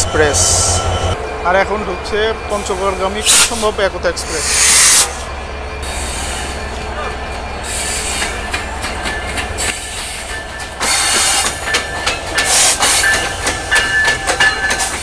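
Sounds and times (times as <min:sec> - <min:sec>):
train wheel squeal: 0:00.0 - 0:15.0
train wheels clacking over rail joints: 0:07.7 - 0:15.0.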